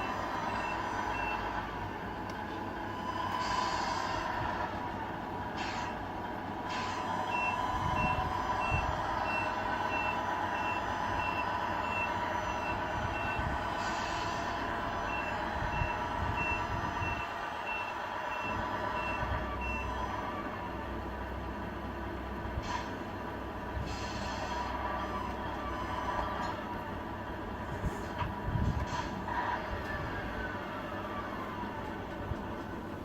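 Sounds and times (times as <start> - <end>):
simulated truck engine running: 0.0 - 33.0.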